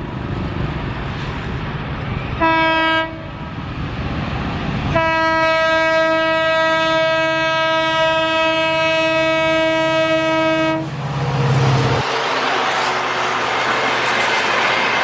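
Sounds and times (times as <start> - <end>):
train rumbling: 0.0 - 15.0
locomotive horn blast: 2.4 - 3.3, 4.9 - 11.0.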